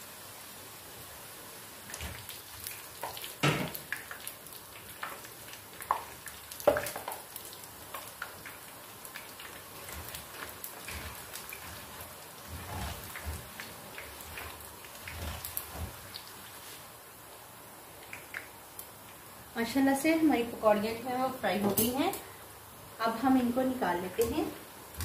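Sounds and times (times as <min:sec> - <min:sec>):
batter sizzling in hot oil: 0:00.0 - 0:25.0
skimmer scraping and knocking pan: 0:09.7 - 0:16.2.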